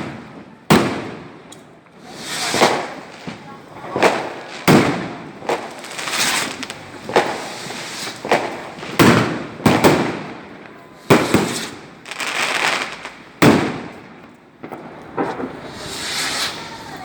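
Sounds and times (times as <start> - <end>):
fireworks banging: 0.0 - 17.0.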